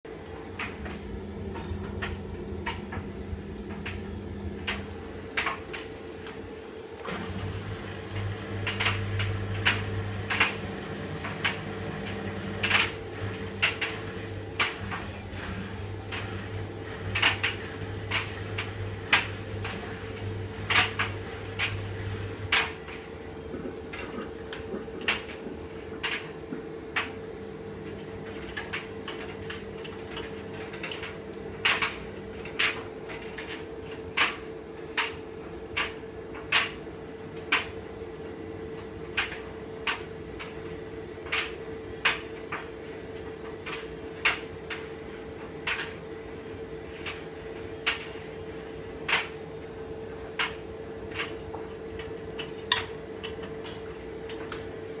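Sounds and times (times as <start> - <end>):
washing machine motor hum: 0.0 - 55.0
washing machine drum banging: 0.5 - 6.0.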